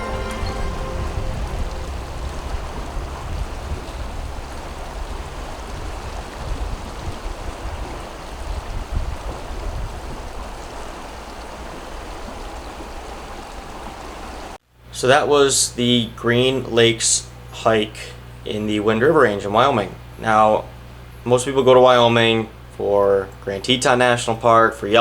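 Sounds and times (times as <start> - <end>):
low rumble: 0.0 - 9.7
flowing water rushing: 0.0 - 14.6.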